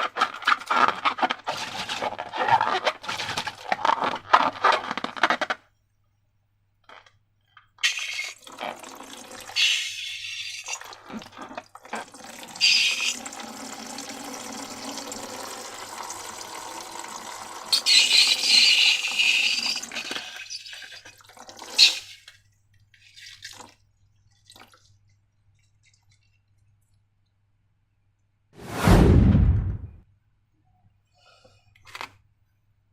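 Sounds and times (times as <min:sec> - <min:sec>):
liquid pouring into container: 0:23.0 - 0:27.0
short sharp sound: 0:28.6 - 0:30.0.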